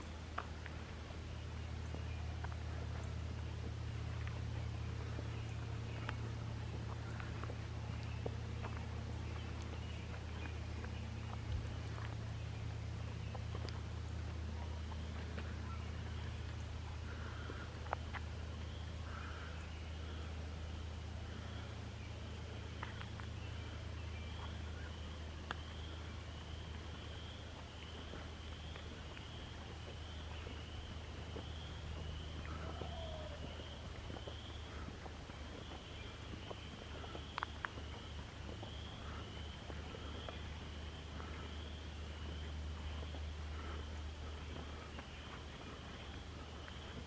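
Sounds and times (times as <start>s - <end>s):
steady low rumble: 0.0s - 47.0s
small animal calling: 32.4s - 34.0s
faint clicks: 37.2s - 37.9s.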